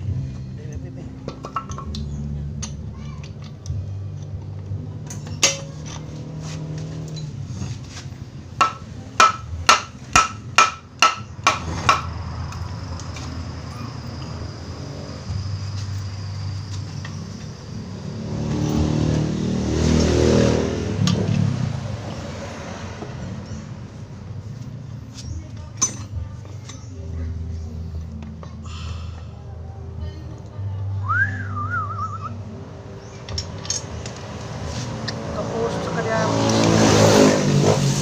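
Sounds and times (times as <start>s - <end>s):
hammer striking metal: 5.3s - 5.8s, 8.6s - 12.1s.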